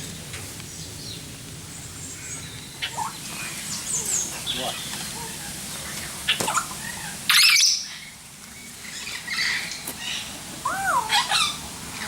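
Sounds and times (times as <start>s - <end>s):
harsh bird squawk: 6.3s - 8.1s, 8.9s - 11.6s.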